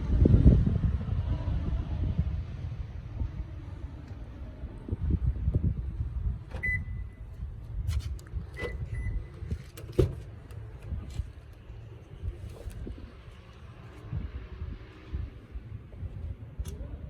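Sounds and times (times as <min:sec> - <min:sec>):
handling and wind noise: 0:00.0 - 0:17.0
short electronic beeps: 0:06.6 - 0:07.2, 0:08.6 - 0:09.3.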